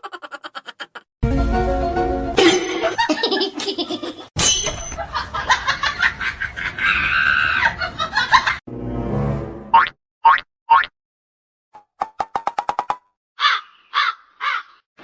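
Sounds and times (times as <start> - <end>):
people laughing: 0.0 - 1.1, 2.7 - 4.3, 5.0 - 8.6.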